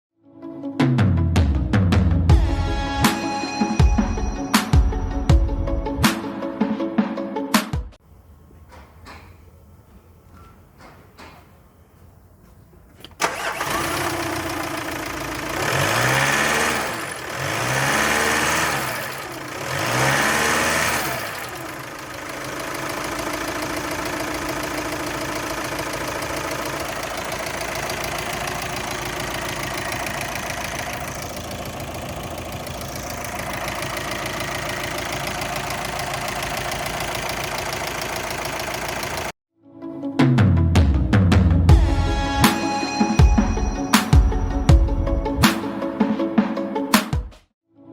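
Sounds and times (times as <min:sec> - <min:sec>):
car engine starting and revving: 0:13.0 - 0:39.4.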